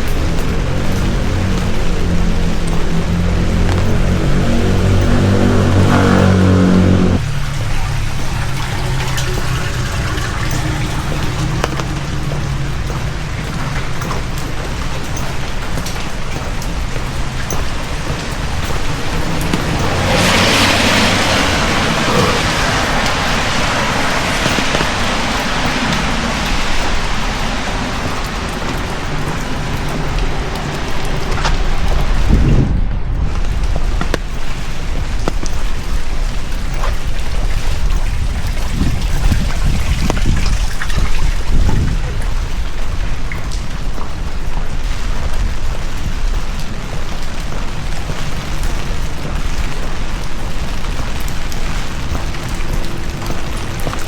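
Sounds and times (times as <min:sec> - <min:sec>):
low rumble: 0:00.0 - 0:46.6
heavy rain falling: 0:00.0 - 0:54.0.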